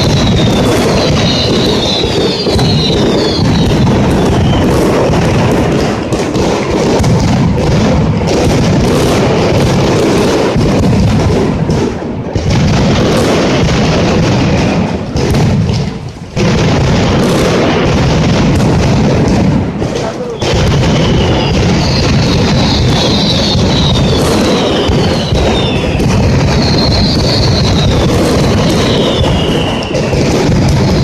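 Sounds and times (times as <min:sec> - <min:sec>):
firecrackers barrage of bangs: 0:00.0 - 0:31.0.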